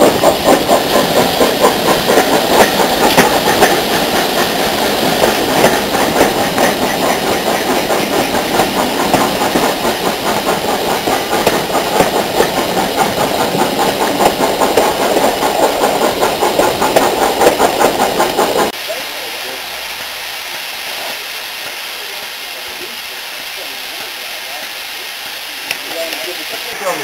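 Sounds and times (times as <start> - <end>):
steam hissing: 0.0 - 27.0
steam locomotive chuffing: 0.0 - 27.0.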